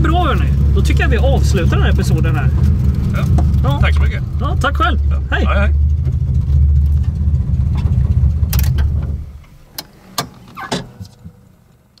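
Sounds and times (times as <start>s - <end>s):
car engine idling: 0.0s - 12.0s
sharp clicks and knocks: 2.5s - 4.1s, 5.8s - 11.4s.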